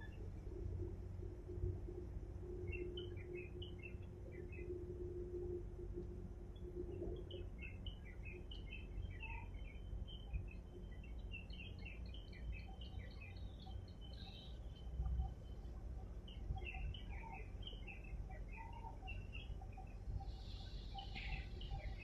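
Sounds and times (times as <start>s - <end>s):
small birds chirping: 2.6s - 4.7s, 7.2s - 22.0s.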